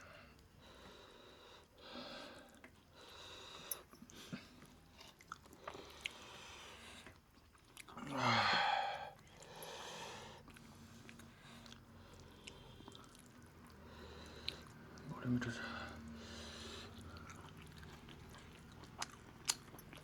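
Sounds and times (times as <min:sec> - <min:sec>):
wet chewing and lip smacks: 0:03.9 - 0:08.0, 0:10.4 - 0:16.2, 0:16.8 - 0:20.0.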